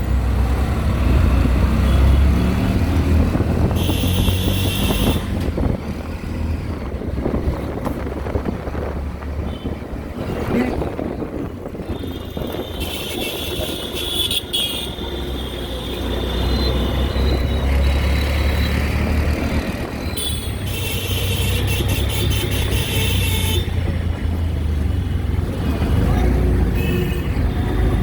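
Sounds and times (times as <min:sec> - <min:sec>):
car horns: 0:03.6 - 0:05.5, 0:11.7 - 0:17.7, 0:20.0 - 0:24.1, 0:26.6 - 0:28.0.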